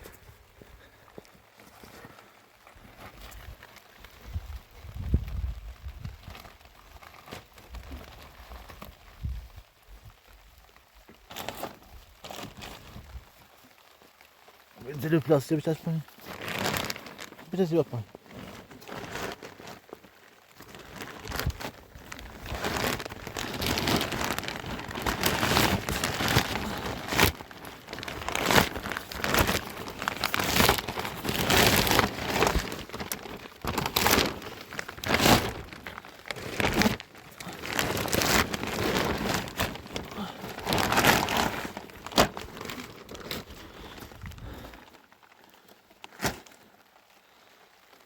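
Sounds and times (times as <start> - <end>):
plastic sheeting crinkling: 0.0 - 48.0.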